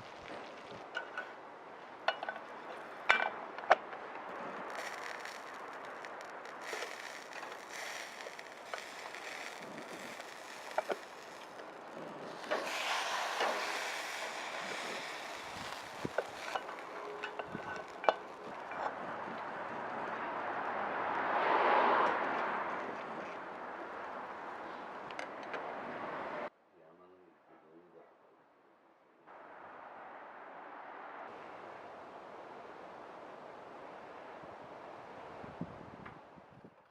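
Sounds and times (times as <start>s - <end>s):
wind gusting: 0.0s - 26.5s
sharp clicks and crackles: 2.1s - 20.4s.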